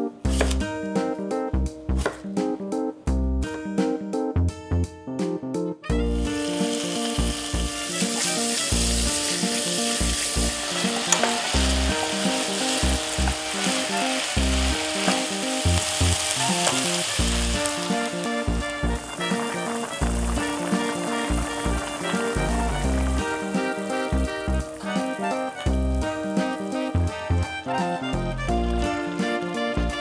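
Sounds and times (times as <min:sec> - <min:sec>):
food sizzling in a pot: 0:06.1 - 0:27.9.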